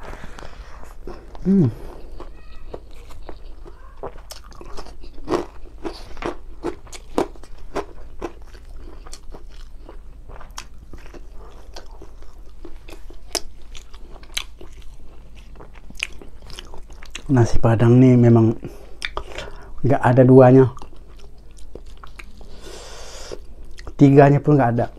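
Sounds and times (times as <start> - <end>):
close-up chewing: 0.0 - 17.3, 18.8 - 19.6, 20.7 - 22.7
wet mouth clicks and smacks: 19.0 - 19.3.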